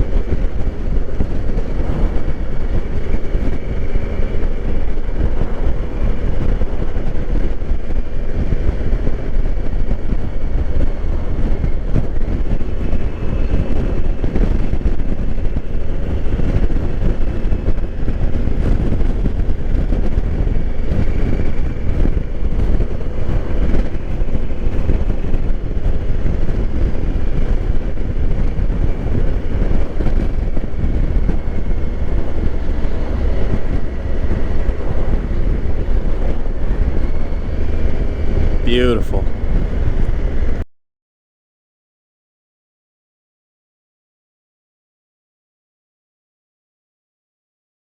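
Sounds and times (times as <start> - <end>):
wind and road noise: 0.0 - 40.6.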